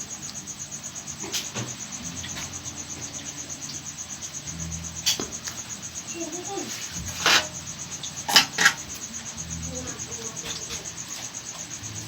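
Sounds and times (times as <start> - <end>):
cricket chirping: 0.0 - 12.0
rustle and clatter: 4.7 - 12.0.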